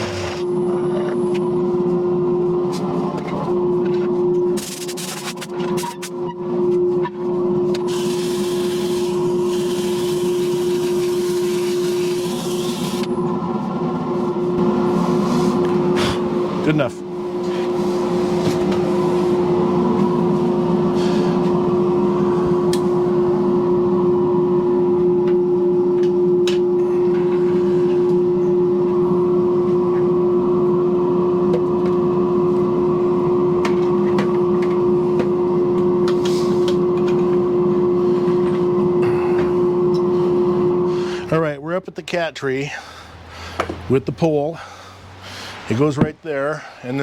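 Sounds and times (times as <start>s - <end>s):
electric motor humming: 7.3s - 13.5s, 14.3s - 41.3s.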